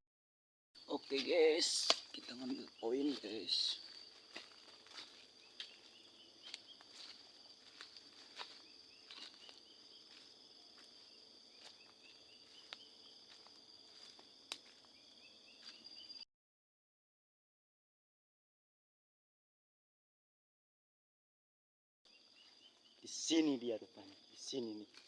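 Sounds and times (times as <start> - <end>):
footsteps through dry undergrowth: 0.8 - 16.2
insects droning and chirping: 0.8 - 16.3, 22.1 - 25.0.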